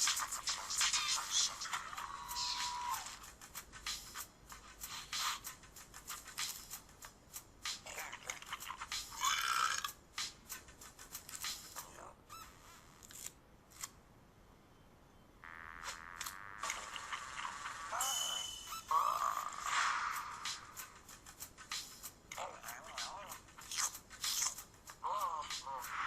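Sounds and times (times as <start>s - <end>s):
brief squeaky sound: 12.3s - 12.9s.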